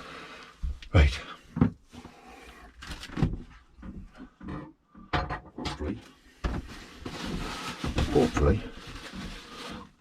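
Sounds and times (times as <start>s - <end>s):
plastic parts knocking and scraping: 2.8s - 10.0s
rustling: 6.3s - 10.0s.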